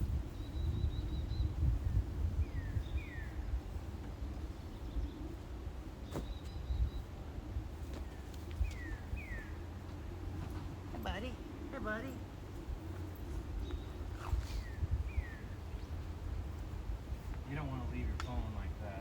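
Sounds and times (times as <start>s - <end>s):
bird whistling song: 0.3s - 3.5s, 6.0s - 7.1s, 8.6s - 9.7s.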